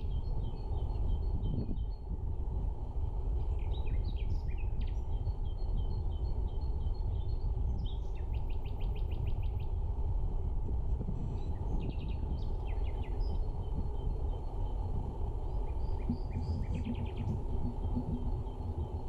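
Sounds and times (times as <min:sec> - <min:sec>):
low outdoor rumble: 0:00.0 - 0:19.0
songbirds chirping: 0:03.1 - 0:09.8, 0:11.3 - 0:19.0.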